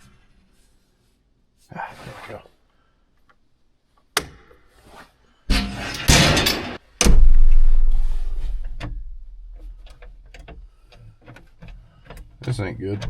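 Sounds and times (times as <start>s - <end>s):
rustling and scraping: 4.7s - 12.7s.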